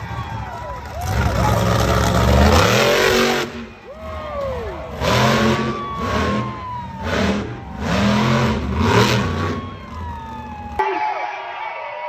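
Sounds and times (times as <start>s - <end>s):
truck engine revving: 0.0s - 10.8s.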